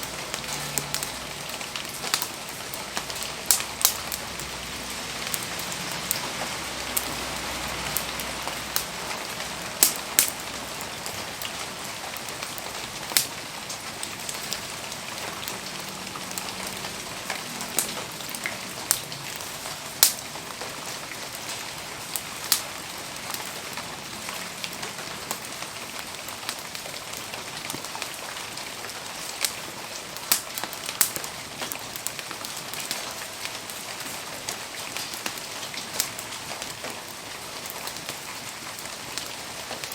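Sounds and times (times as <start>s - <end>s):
campfire pops and crackles: 0.0s - 23.9s, 24.6s - 39.9s
rain hissing: 0.0s - 39.9s.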